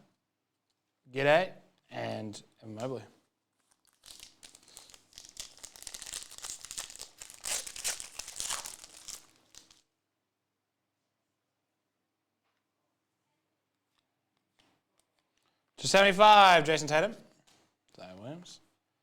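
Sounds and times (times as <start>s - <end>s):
plastic wrapper crinkling: 3.4s - 9.9s.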